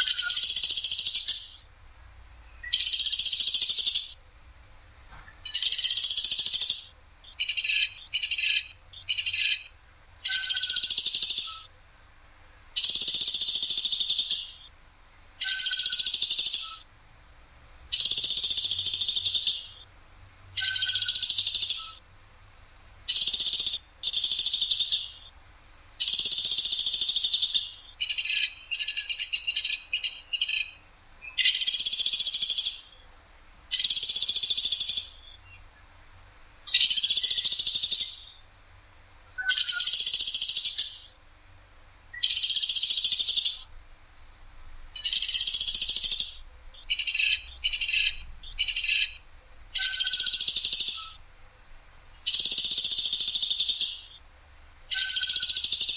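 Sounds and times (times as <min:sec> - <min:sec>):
songbird high trilled bursts: 0:00.0 - 0:01.8, 0:02.4 - 0:04.3, 0:05.4 - 0:11.8, 0:12.5 - 0:14.8, 0:15.4 - 0:16.9, 0:17.6 - 0:19.9, 0:20.5 - 0:22.1, 0:22.8 - 0:25.4, 0:26.0 - 0:33.1, 0:33.7 - 0:35.6, 0:36.6 - 0:38.5, 0:39.3 - 0:41.2, 0:42.1 - 0:43.8, 0:44.9 - 0:51.2, 0:52.0 - 0:54.3, 0:54.9 - 0:55.9.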